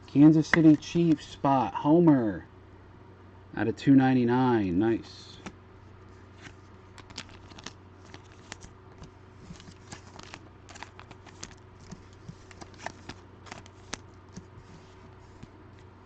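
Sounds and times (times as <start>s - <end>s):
faint steady hum: 0.0s - 16.0s
cards and wrappers rustling: 0.4s - 1.0s, 6.3s - 15.8s.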